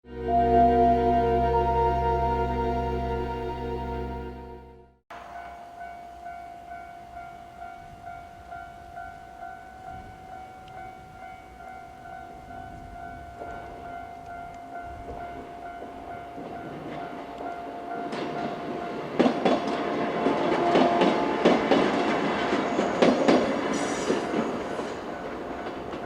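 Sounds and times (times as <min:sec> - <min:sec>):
train rumble: 0:05.2 - 0:26.0
level-crossing alarm ringing: 0:05.4 - 0:26.0
train wheels clacking on rail joints: 0:18.0 - 0:26.0.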